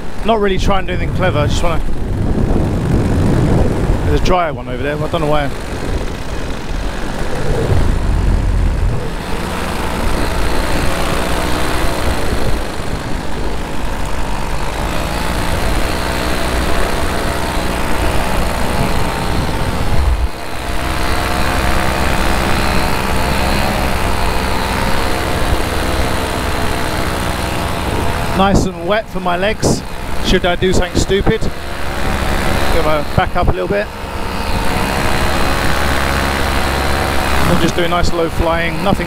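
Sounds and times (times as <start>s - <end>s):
paramotor engine and propeller: 0.0s - 39.0s
wind buffeting microphone: 0.3s - 20.7s.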